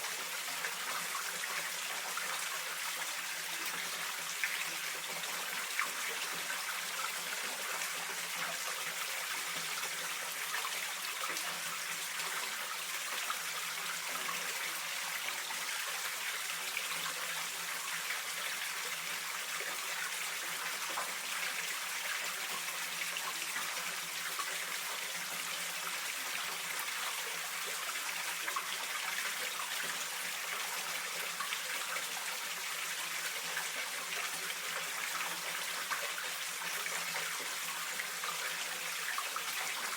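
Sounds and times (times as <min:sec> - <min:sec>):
mountain stream flowing: 0:00.0 - 0:39.9.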